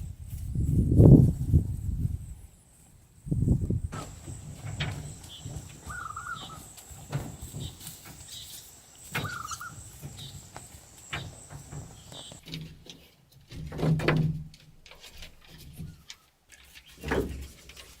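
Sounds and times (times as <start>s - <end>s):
warbling bird calls: 3.9s - 12.4s.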